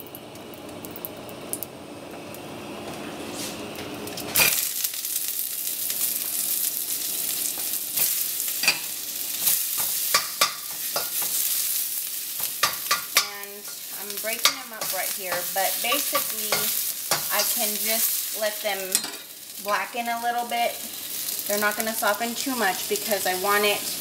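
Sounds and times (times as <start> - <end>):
onions sizzling in wok: 2.2 - 24.0.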